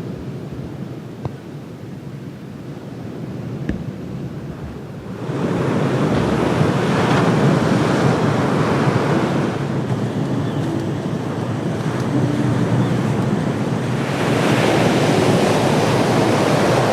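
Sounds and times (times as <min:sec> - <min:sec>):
wind: 0:00.0 - 0:16.9
surf rushing: 0:03.6 - 0:16.9.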